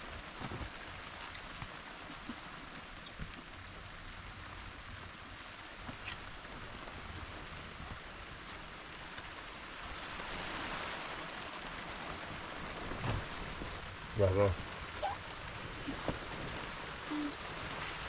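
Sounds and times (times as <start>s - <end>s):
steady rain falling: 0.0s - 18.0s
light drip ticks: 1.0s - 3.7s.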